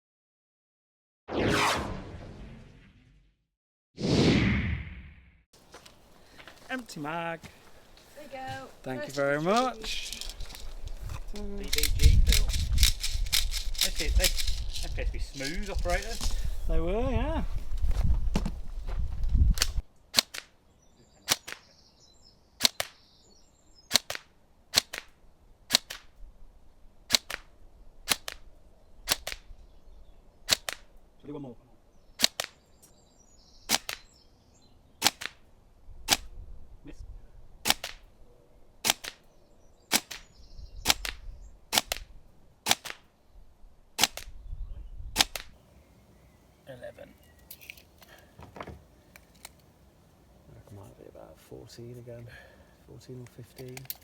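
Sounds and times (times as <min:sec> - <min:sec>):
airsoft gun firing clacks: 0:23.9 - 0:26.1, 0:27.1 - 0:27.5, 0:28.1 - 0:28.4, 0:30.5 - 0:30.9, 0:37.7 - 0:38.1, 0:38.8 - 0:39.3, 0:40.9 - 0:43.1, 0:44.0 - 0:44.3.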